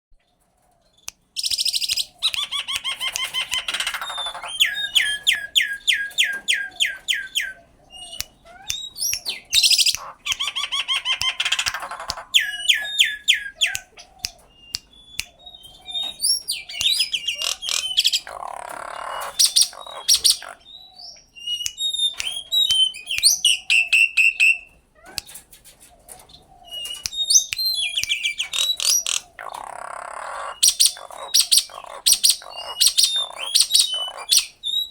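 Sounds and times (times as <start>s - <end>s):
myna calling: 1.5s - 20.9s, 26.5s - 34.9s.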